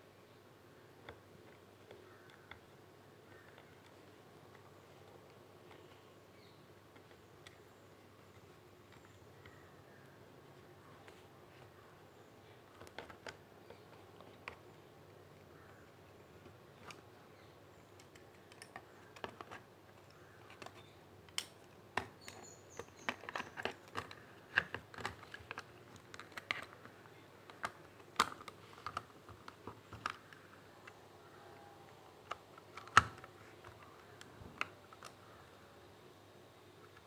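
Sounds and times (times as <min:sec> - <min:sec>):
computer mouse clicks: 0:18.0 - 0:26.8.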